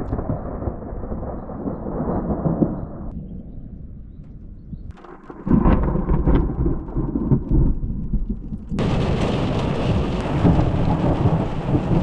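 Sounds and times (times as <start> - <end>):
thunder rumbling: 0.0 - 12.0
steady rain hiss: 8.8 - 12.0.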